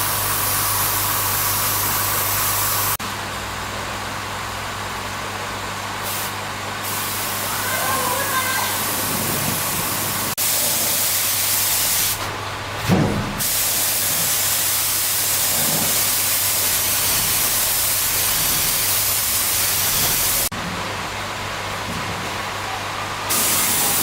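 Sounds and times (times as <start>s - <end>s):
high-pressure spray hissing: 0.0s - 3.0s, 6.0s - 12.2s, 13.4s - 20.5s, 23.3s - 24.0s
short low thump: 12.8s - 13.6s.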